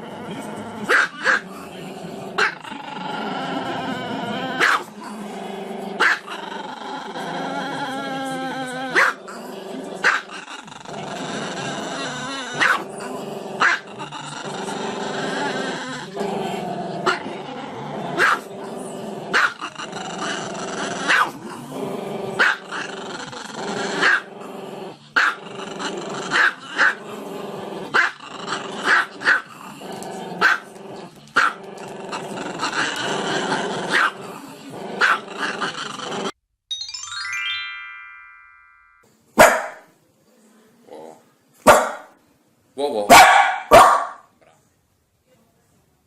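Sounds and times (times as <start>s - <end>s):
dog growling: 0.0s - 36.4s, 40.8s - 41.3s
dog barking: 0.9s - 1.4s, 4.6s - 4.9s, 6.0s - 6.3s, 9.0s - 9.2s, 12.6s - 12.8s, 13.6s - 13.8s, 18.2s - 18.5s, 19.4s - 19.6s, 21.1s - 21.4s, 22.4s - 22.6s, 24.0s - 24.2s, 28.9s - 29.4s, 30.4s - 30.6s, 33.9s - 34.2s, 35.0s - 35.2s, 39.4s - 39.9s, 41.6s - 42.1s, 43.1s - 44.3s.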